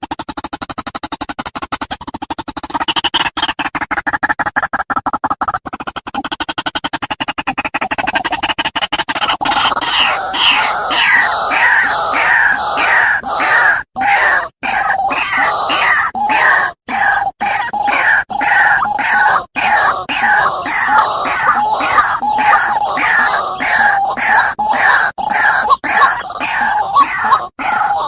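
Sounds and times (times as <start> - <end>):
fast pulsing electronic sound: 0.0 - 13.4, 17.4 - 28.0
waterhen calling harshly: 9.4 - 28.0.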